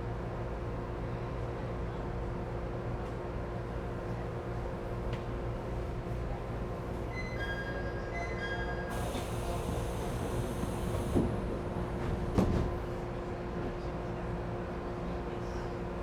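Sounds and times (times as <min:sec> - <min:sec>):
train doors thumping shut: 0:08.9 - 0:13.0.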